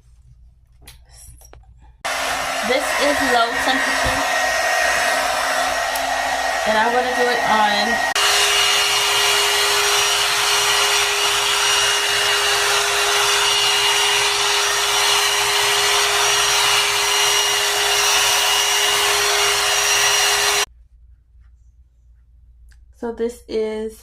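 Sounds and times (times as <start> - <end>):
hot air brush running: 2.1 - 20.7.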